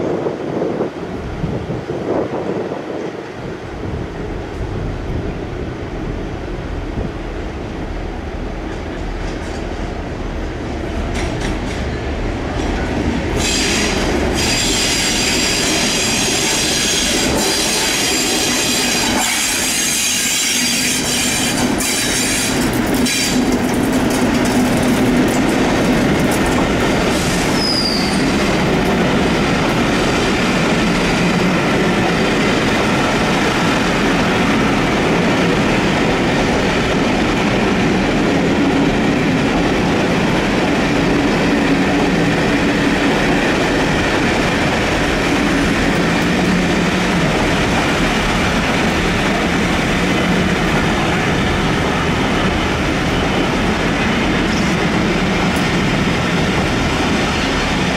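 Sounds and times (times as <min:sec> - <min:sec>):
train running past: 0:00.0 - 0:57.9
high-pitched wheel squeal: 0:27.5 - 0:28.3.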